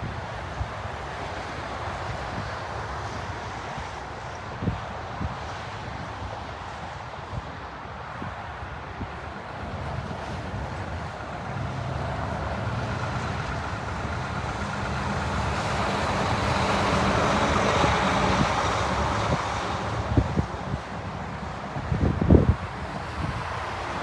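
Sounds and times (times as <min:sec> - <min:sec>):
jet airliner passing: 0:09.1 - 0:24.0.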